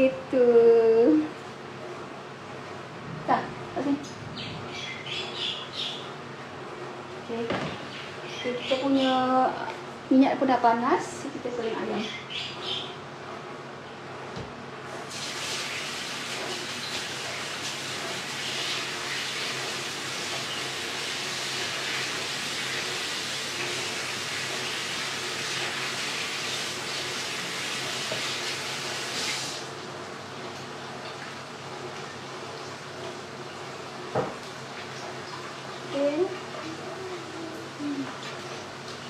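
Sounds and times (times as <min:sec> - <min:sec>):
chicken frying in hot oil: 0:15.0 - 0:39.0.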